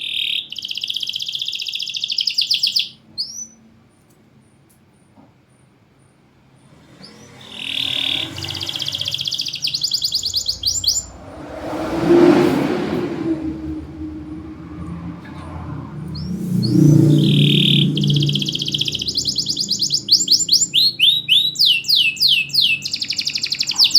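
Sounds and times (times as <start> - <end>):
canary singing trills: 0.0 - 3.7, 6.7 - 11.2, 15.3 - 23.9
broad rushing noise: 6.6 - 21.0.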